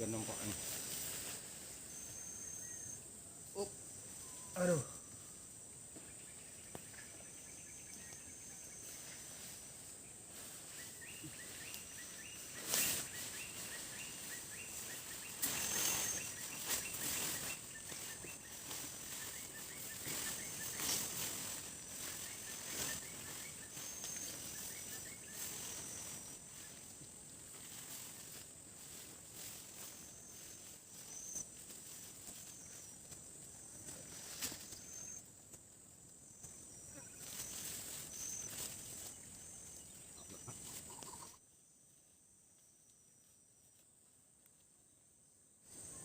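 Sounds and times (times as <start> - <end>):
insects buzzing high-pitched: 0.0 - 44.1.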